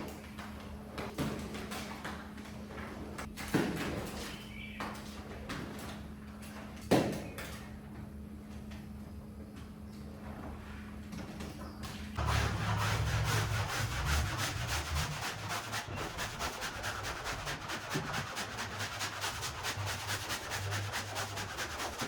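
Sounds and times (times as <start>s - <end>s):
cleaning tool scrubbing a rug: 12.2s - 22.0s
steady low hum: 12.2s - 22.0s.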